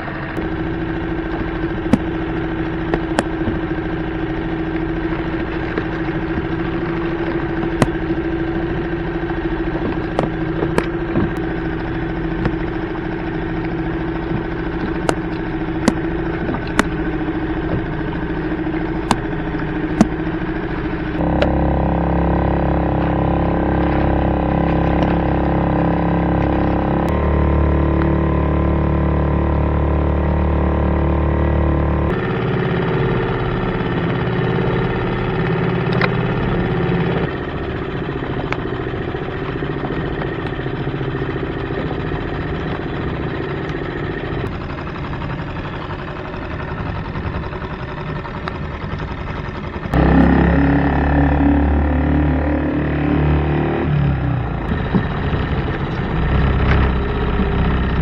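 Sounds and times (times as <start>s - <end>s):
outboard motor running: 0.0s - 58.0s.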